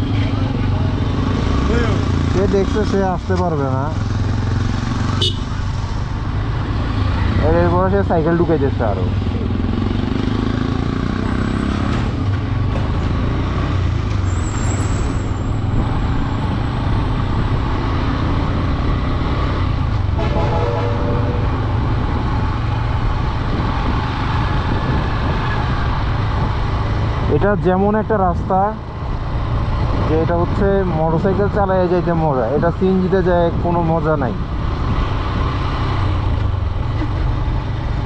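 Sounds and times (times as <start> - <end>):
wind and road noise: 0.0 - 38.0
motorcycle engine running: 3.7 - 11.5
horn: 20.2 - 21.5.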